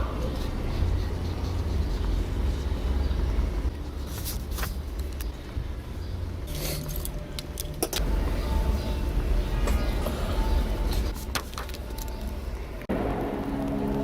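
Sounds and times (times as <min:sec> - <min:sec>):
steady low rumble: 0:07.2 - 0:14.0.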